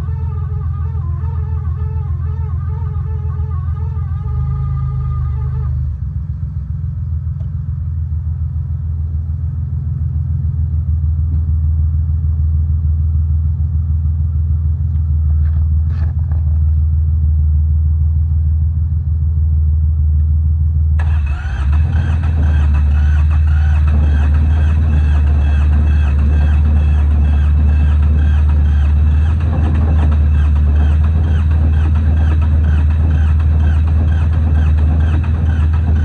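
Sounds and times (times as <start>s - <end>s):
music: 0.0s - 5.9s, 22.0s - 36.0s
tractor diesel engine chugging: 21.0s - 36.0s.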